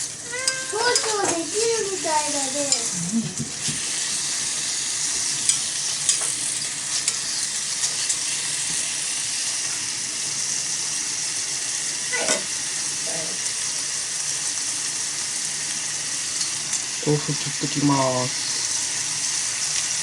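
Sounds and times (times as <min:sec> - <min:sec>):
food sizzling in oil: 0:00.0 - 0:20.0.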